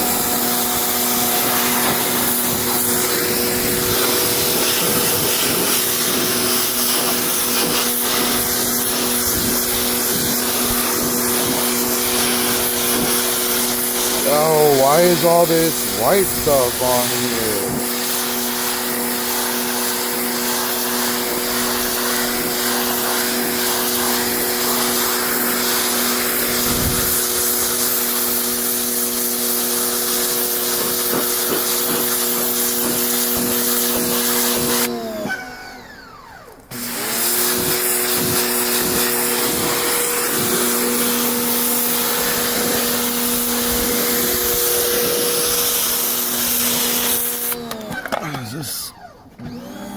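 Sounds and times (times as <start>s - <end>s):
electric motor humming and whining: 31.9s - 49.9s.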